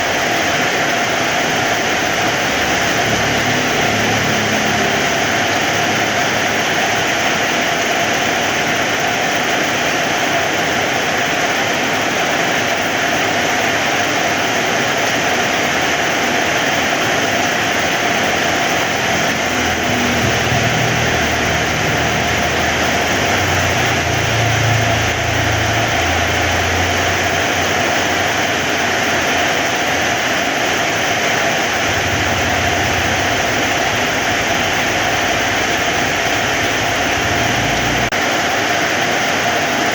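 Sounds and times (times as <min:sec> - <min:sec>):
heavy rain: 0:00.0 - 0:39.9
low rumble: 0:18.6 - 0:27.6, 0:31.8 - 0:38.2.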